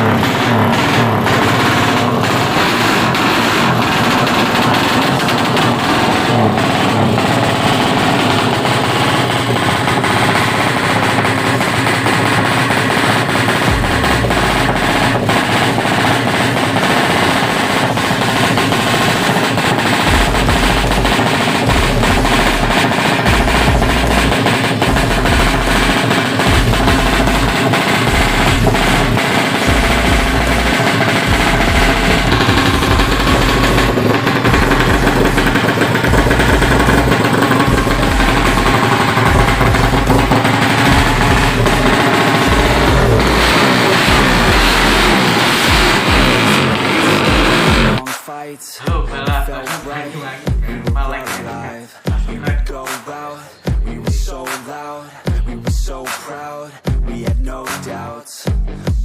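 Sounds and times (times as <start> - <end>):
motorcycle engine revving: 0.0 - 48.1
background music: 20.0 - 46.7, 47.7 - 59.0.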